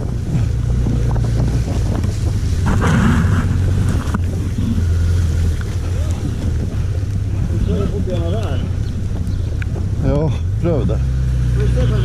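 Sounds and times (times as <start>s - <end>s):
motorcycle engine humming: 0.0s - 12.0s
wind rushing over microphone: 0.0s - 12.0s.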